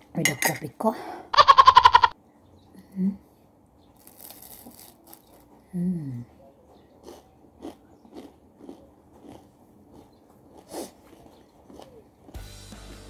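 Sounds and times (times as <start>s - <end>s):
crunchy cracker chewing: 4.0s - 5.6s, 6.9s - 12.4s
person humming mm: 5.7s - 6.3s.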